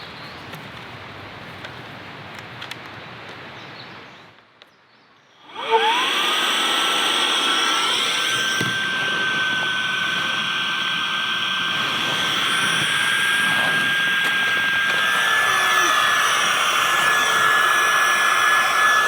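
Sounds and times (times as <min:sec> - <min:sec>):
electric air pump whining: 0:05.4 - 0:19.0.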